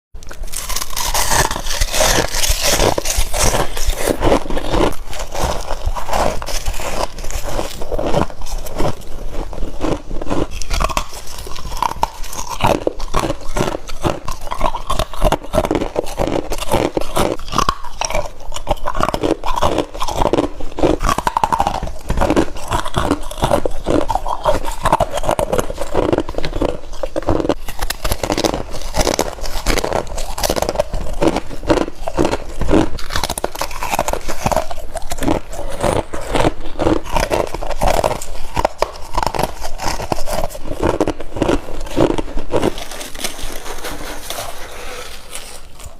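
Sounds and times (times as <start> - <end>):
crisp crunches of bites into frost: 0.2 - 45.9.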